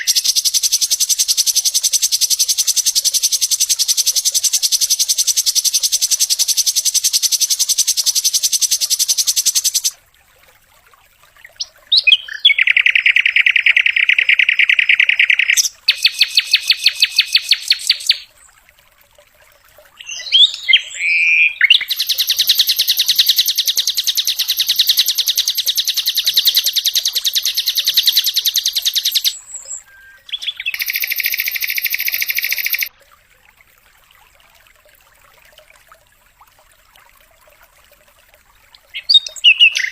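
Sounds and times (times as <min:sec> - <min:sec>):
bird singing rapid high trills: 0:00.0 - 0:09.9, 0:11.6 - 0:18.3, 0:20.0 - 0:32.9, 0:38.9 - 0:39.9.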